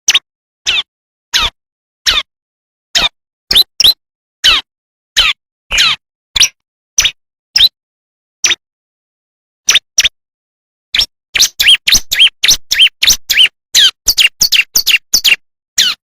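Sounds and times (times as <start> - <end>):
bird chirping: 3.0 - 7.8, 9.7 - 10.2, 11.0 - 16.0.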